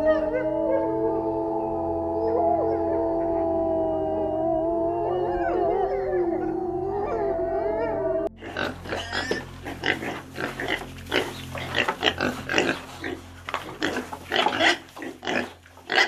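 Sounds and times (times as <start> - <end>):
wolves howling: 0.0 - 8.4
pigs grunting: 8.2 - 16.0.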